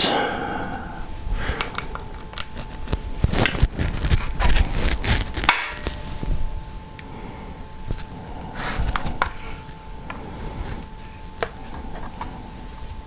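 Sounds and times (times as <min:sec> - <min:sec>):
objects clicking and scraping: 0:07.9 - 0:12.4.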